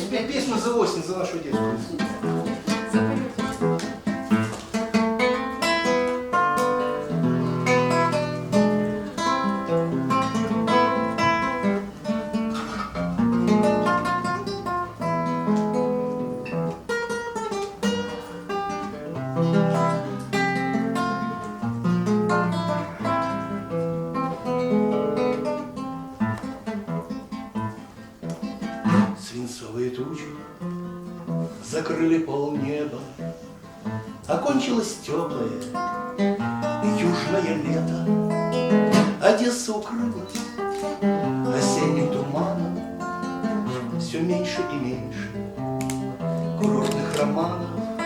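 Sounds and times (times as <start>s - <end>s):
acoustic guitar playing: 0.0s - 48.0s.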